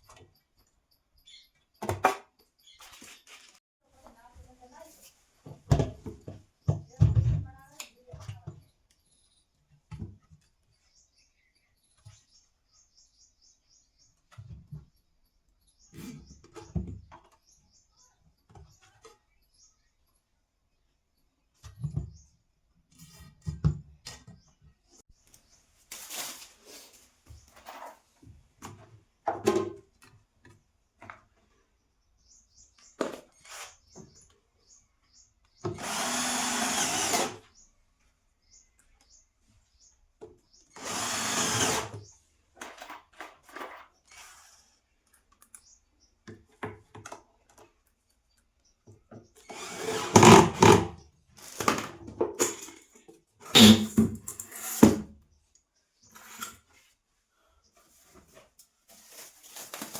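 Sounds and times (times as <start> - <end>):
small electric power tool: 35.6 - 37.5, 40.7 - 42.0, 49.4 - 51.0, 53.6 - 54.0.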